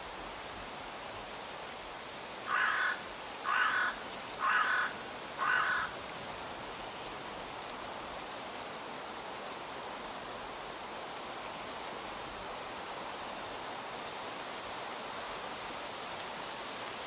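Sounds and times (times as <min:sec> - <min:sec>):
steady hiss: 0:00.0 - 0:17.0
crow cawing: 0:02.5 - 0:06.0.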